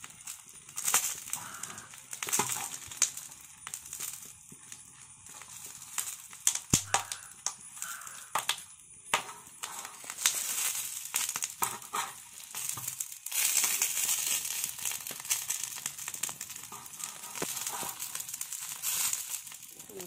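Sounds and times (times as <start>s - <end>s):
dry leaves crinkling: 0.0s - 8.3s, 9.6s - 20.0s
fish sizzling on hot iron: 0.0s - 20.0s
steel spatula clicking and scraping: 5.3s - 19.8s.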